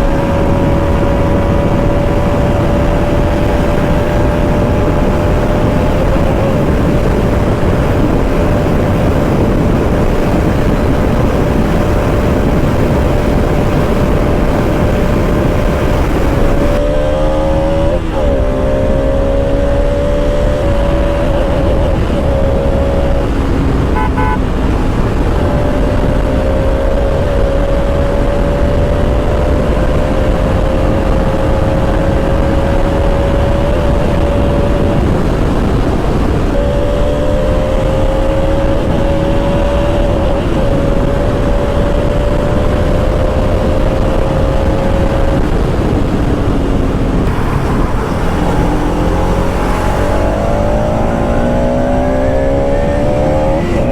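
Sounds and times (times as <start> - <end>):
motorcycle engine cruising: 0.0 - 53.9
wind rush: 0.0 - 53.9
horn toot: 23.9 - 24.6.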